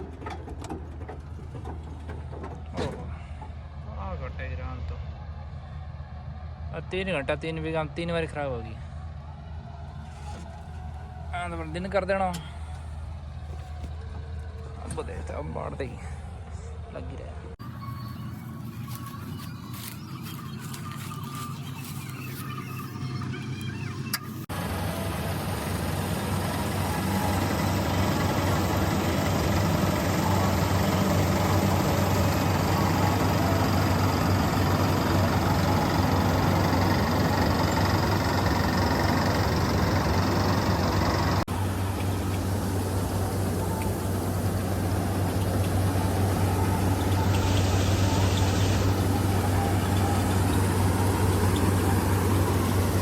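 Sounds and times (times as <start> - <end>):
tractor engine running: 0.0 - 4.2, 17.6 - 53.0.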